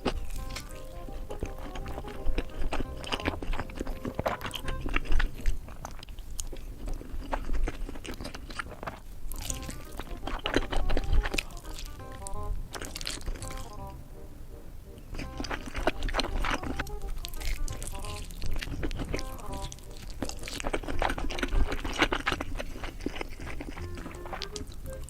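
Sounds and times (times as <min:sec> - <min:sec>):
crunchy bites and chewing: 0:00.0 - 0:14.0, 0:15.0 - 0:25.0.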